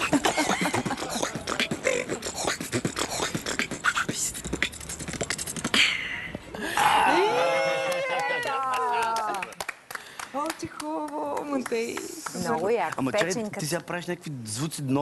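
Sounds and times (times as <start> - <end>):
beatboxing: 0.0 - 6.5.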